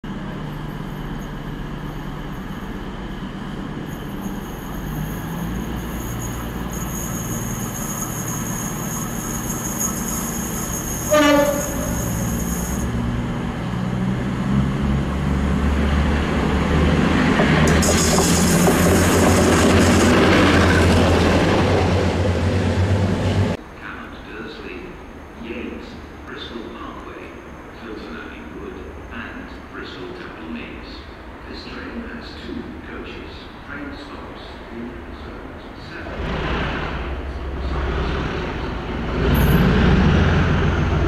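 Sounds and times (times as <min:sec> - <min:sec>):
diesel locomotive approaching: 0:00.0 - 0:41.0
diesel train engines whining: 0:00.0 - 0:41.0
train horn blast: 0:11.0 - 0:12.8.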